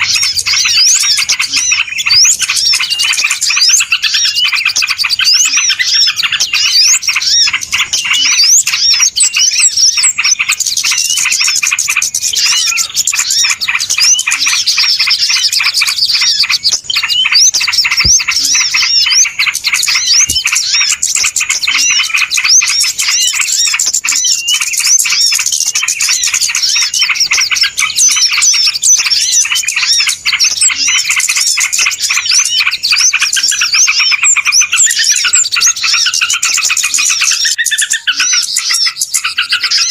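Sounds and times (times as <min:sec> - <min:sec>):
flock of small birds chirping: 0:00.0 - 0:39.9.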